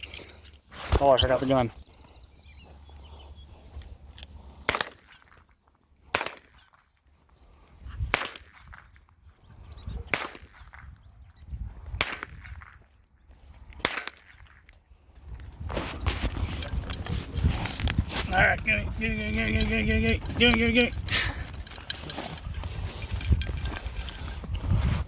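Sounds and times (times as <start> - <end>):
small gun shots: 10.1 - 10.6.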